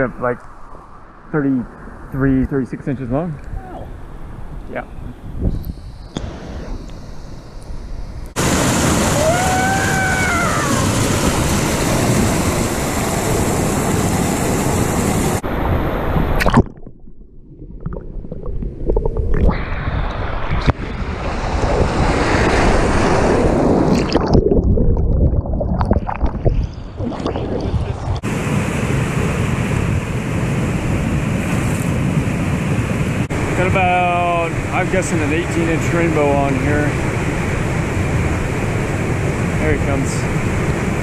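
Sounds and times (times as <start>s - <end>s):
river rapid rushing: 8.4s - 15.5s.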